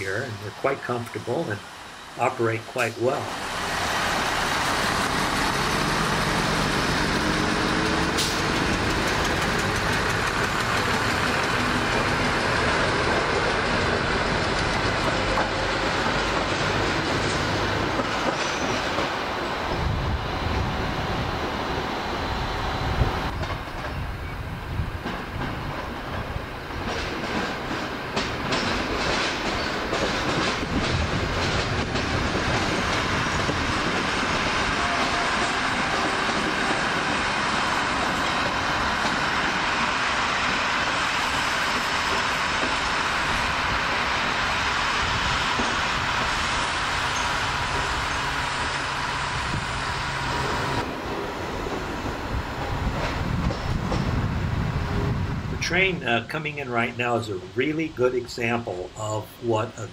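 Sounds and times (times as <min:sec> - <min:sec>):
train running rumble: 0:00.0 - 0:59.9
wheels clicking over rail joints: 0:07.1 - 0:19.6, 0:24.9 - 0:43.4.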